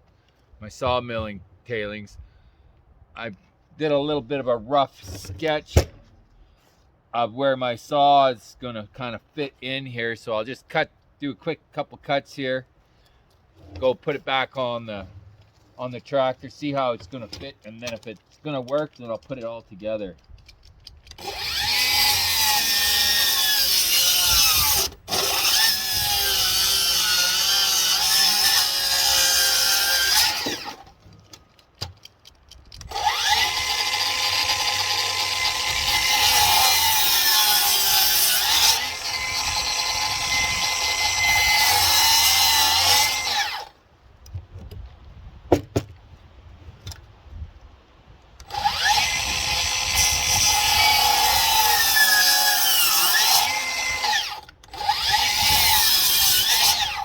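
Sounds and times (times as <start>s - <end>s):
electric saw cutting wood: 21.2s - 30.9s, 32.9s - 43.8s, 48.4s - 57.0s.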